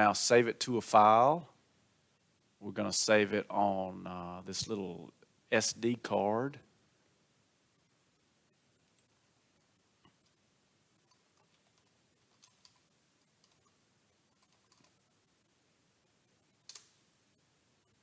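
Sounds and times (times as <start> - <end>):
mouse and keyboard clicks: 11.0 - 15.0, 16.6 - 17.0.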